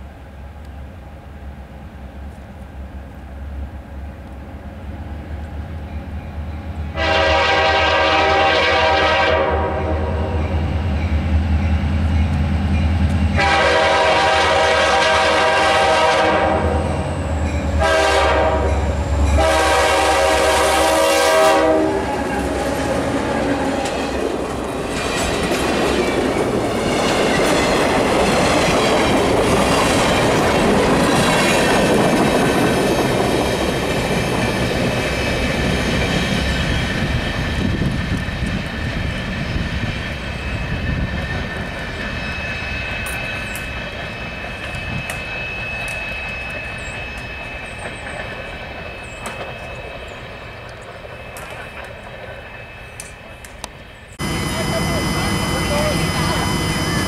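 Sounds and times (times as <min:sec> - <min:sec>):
train air horn: 0:06.9 - 0:10.6, 0:13.4 - 0:17.2, 0:17.8 - 0:22.2, 0:54.2 - 0:57.0
diesel engines rumbling: 0:53.0 - 0:57.0.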